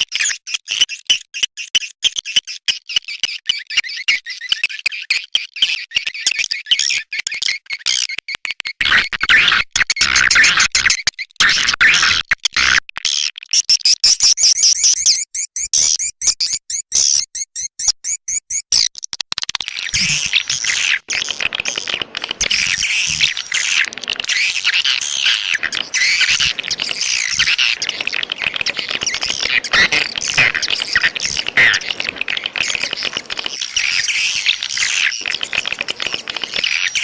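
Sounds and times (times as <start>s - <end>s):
swiftlets twittering: 19.9s - 37.0s.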